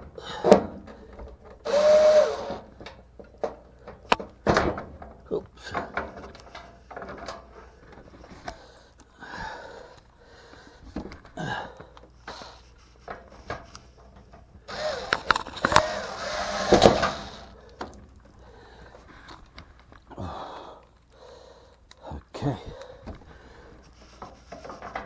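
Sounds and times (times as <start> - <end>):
sheet metal clicks and scraping: 0.4 - 8.6, 11.9 - 18.4, 23.0 - 25.0.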